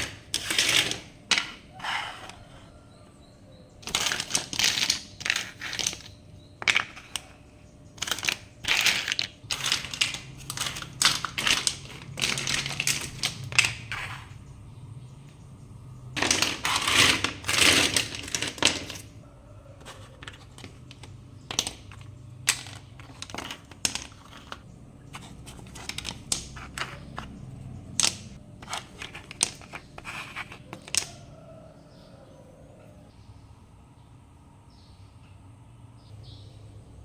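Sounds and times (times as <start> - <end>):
rustling or crinkling: 3.8 - 14.4, 16.2 - 19.2, 19.8 - 31.2
clicks and taps of objects handled: 19.8 - 31.2.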